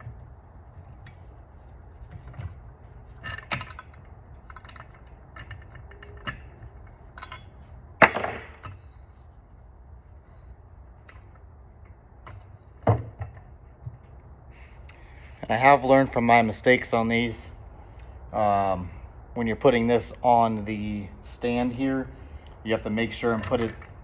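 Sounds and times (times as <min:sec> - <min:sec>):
hand tools and metal clinking: 0:01.9 - 0:09.3.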